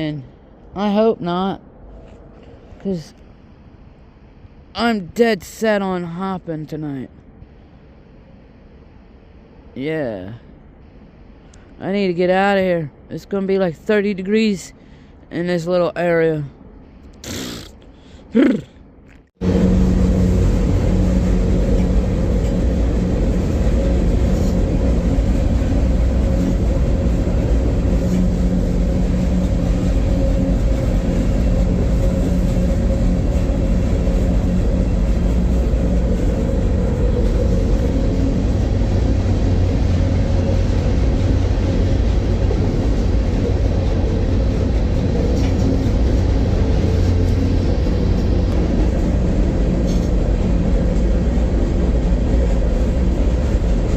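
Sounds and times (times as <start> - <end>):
freight train rumbling: 0.0 - 18.6, 19.4 - 53.9
steady low hum: 14.7 - 53.9.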